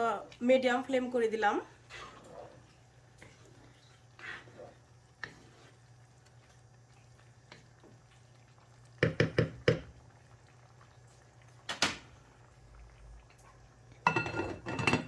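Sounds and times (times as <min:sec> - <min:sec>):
metal cookware clanking: 0:14.0 - 0:15.0.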